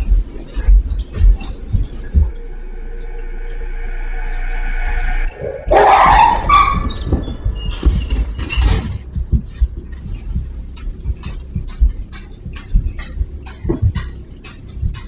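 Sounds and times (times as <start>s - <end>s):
dog yelping: 5.7s - 7.2s.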